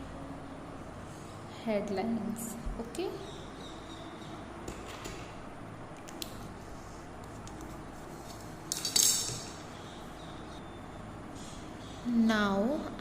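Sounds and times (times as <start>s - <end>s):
hard objects clinking: 8.7s - 9.6s.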